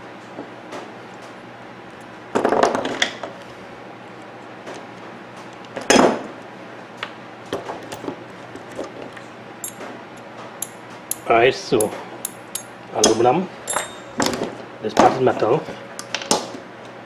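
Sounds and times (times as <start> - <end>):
metal fan parts clattering: 7.6 - 16.3.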